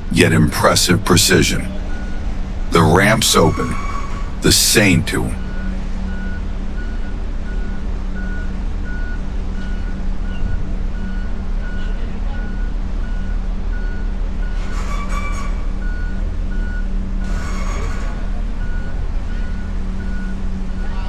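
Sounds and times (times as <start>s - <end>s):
heavy engine humming: 0.0s - 14.8s
reversing alarm beeping: 2.8s - 14.6s.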